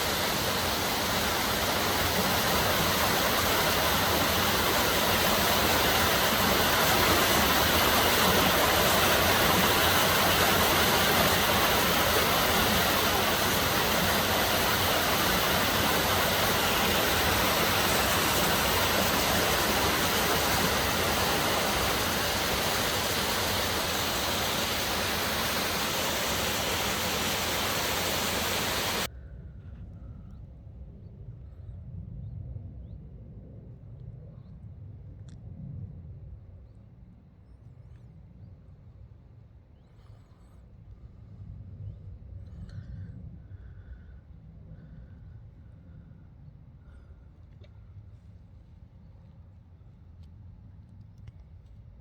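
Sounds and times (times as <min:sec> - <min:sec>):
fast-flowing water rushing: 0:00.0 - 0:29.1.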